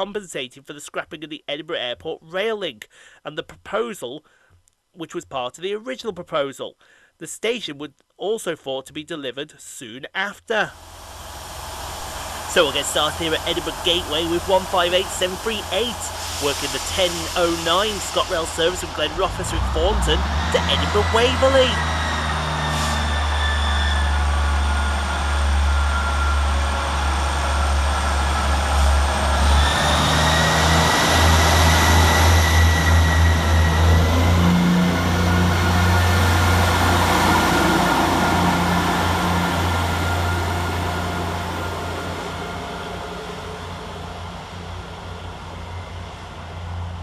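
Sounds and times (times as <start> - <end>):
high whine: 10.7 - 47.0
diesel train engine hum: 10.8 - 47.0
wheels rushing on rails: 10.8 - 47.0.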